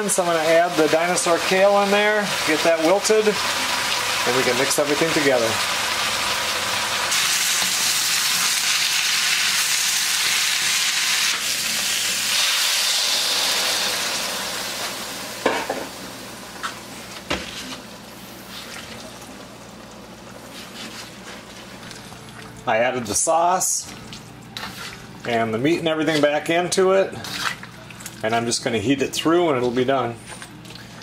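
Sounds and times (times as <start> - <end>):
vegetables sizzling in a wok: 0.1 - 18.7.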